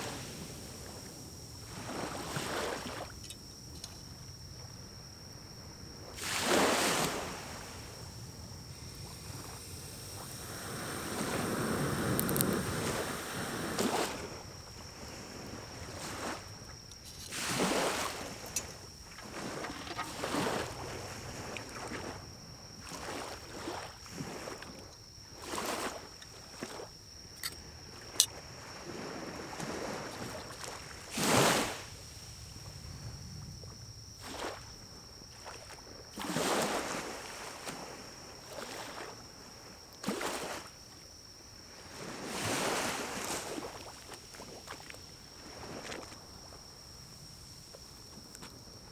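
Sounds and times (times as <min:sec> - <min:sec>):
pine cones burning in a stove: 0:11.8 - 0:13.0.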